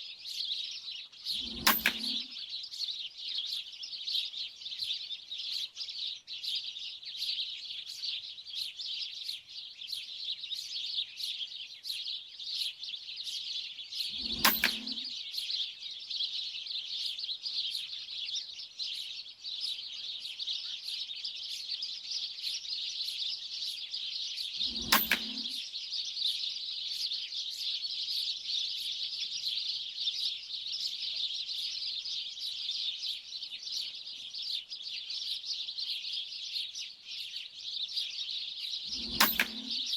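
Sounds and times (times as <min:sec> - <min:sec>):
flock of small birds chattering: 0:00.0 - 0:39.9
air rifle shots: 0:14.2 - 0:15.1, 0:24.7 - 0:25.6, 0:39.0 - 0:39.9.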